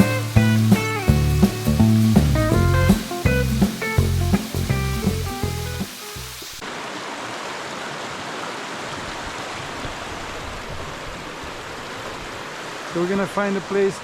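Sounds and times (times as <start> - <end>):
background music: 0.0 - 6.4
river water rushing: 0.0 - 14.0.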